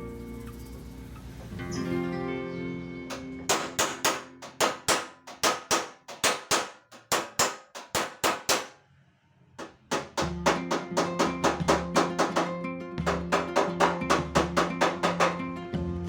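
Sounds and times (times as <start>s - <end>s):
hammer striking sheet metal: 3.1s - 8.8s, 9.6s - 15.6s.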